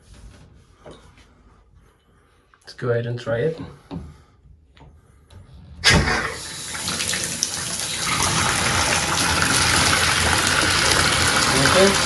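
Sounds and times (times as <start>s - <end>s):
water gushing from faucet: 6.0s - 12.0s.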